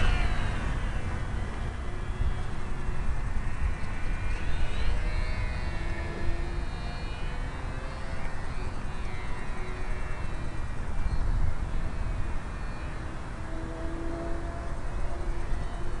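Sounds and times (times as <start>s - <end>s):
wind buffeting the microphone: 0.0s - 6.7s
high whine of model airplane motor: 0.0s - 16.0s.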